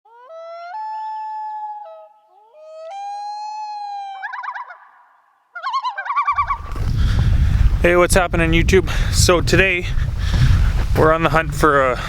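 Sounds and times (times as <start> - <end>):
long wailing calls: 0.1 - 6.6.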